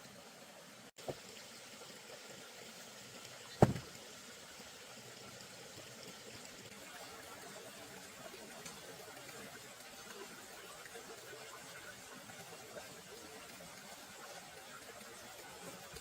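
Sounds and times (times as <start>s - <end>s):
sharp knock with ring: 3.6s - 3.8s.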